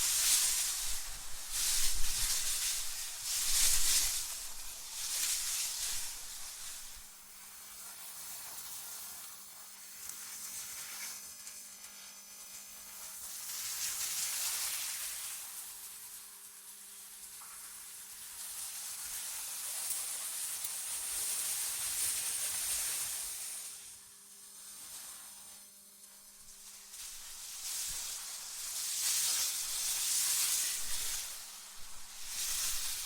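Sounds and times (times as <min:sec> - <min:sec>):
hissing rush of wind: 0:00.0 - 0:07.1, 0:29.5 - 0:33.0.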